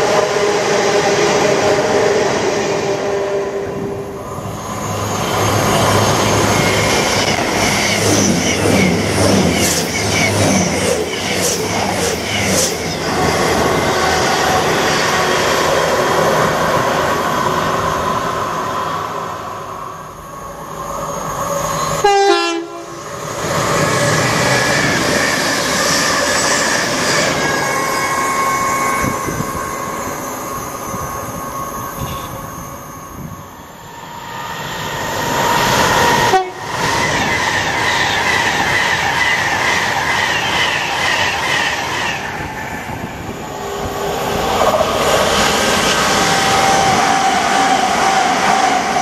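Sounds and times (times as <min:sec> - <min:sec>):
train horn: 0:00.1 - 0:04.1, 0:22.0 - 0:23.0, 0:32.0 - 0:32.5, 0:36.2 - 0:36.7.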